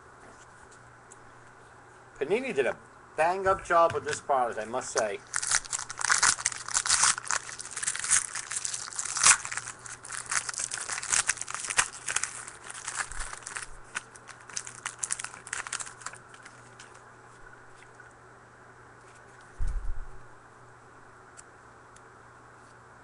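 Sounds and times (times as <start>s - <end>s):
foil wrapper crinkling and tearing: 4.9s - 17.0s.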